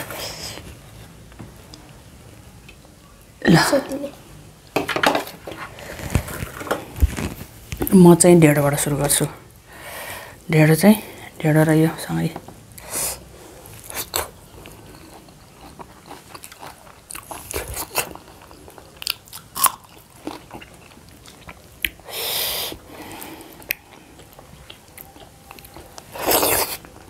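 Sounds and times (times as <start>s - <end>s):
people chewing with wet mouth clicks: 13.8s - 27.0s.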